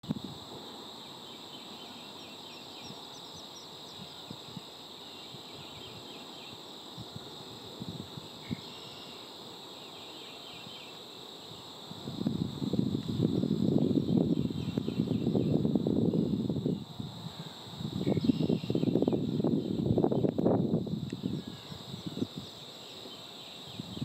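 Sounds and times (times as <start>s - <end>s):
high insect drone: 0.0s - 24.0s
faint bird chirps: 17.4s - 19.3s.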